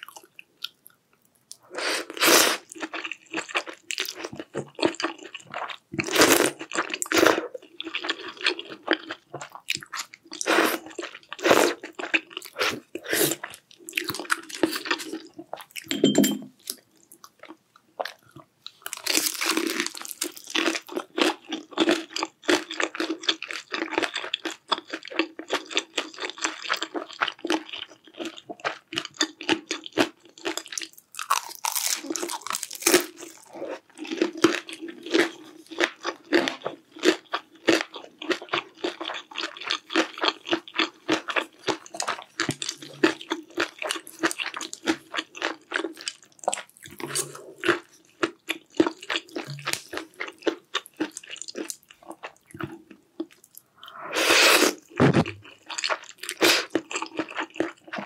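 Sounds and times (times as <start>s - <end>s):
crisp crunching and chewing: 16.6s - 53.7s, 54.8s - 58.0s.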